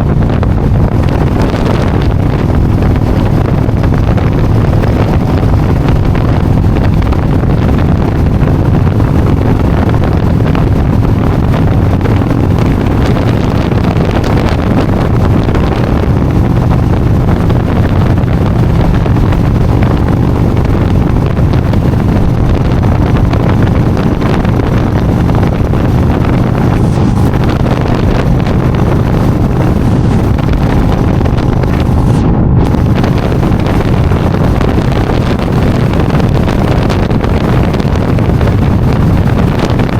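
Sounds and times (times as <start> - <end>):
motorcycle engine drone: 0.0 - 39.9
wind buffeting microphone: 0.0 - 39.9.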